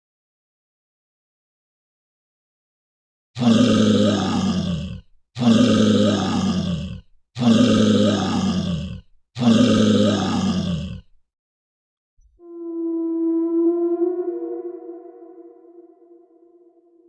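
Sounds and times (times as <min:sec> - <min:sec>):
animal call: 0:12.4 - 0:16.9.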